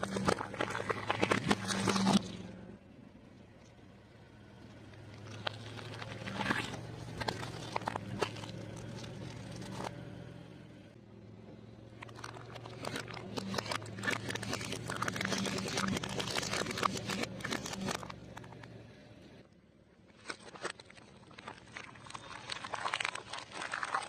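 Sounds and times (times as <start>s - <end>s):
food crunching under a car: 0.0s - 2.5s, 4.8s - 10.2s, 11.8s - 18.8s, 20.1s - 24.0s
car engine hum: 0.0s - 20.0s.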